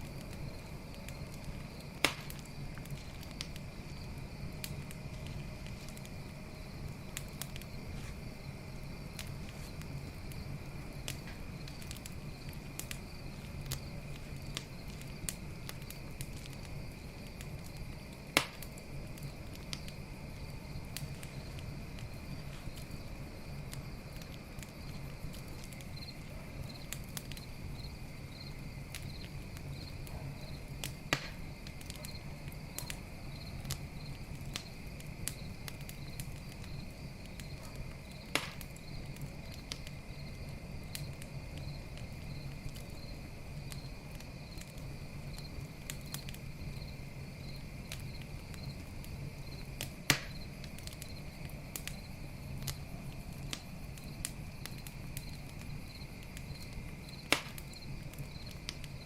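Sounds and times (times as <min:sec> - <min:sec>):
campfire crackling: 0:00.0 - 0:59.0
crickets chirping: 0:00.0 - 0:59.0
fire pops: 0:00.0 - 0:59.0.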